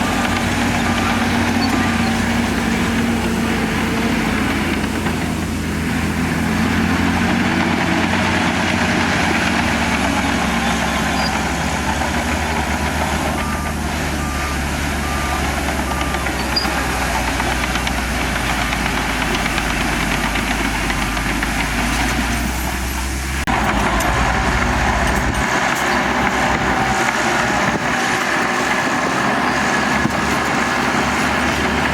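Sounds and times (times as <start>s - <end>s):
heavy machinery diesel engine: 0.0s - 31.9s
reversing alarm beeping: 9.2s - 20.3s.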